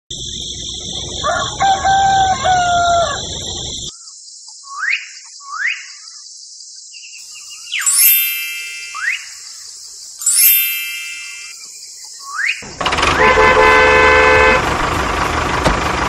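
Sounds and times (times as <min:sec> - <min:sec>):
bird-like chirps: 0:00.1 - 0:12.8
rooster crowing: 0:01.1 - 0:03.9
steady high hiss: 0:07.2 - 0:11.9.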